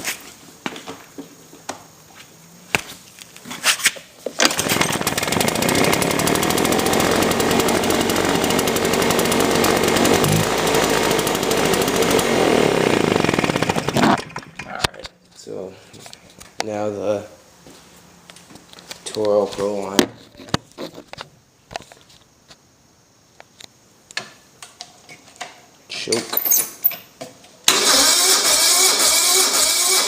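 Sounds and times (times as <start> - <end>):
leaf blower engine running: 4.4 - 14.6
blower fan rushing: 4.5 - 14.0.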